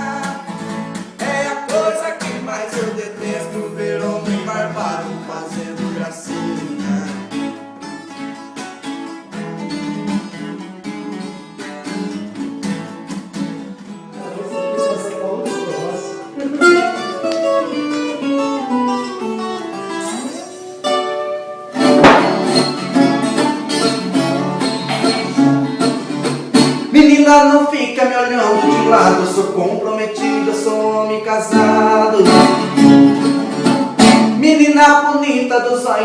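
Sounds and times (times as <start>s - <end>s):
plucked guitar-like strings: 3.8s - 26.9s
loud strummed chord: 19.6s - 26.9s.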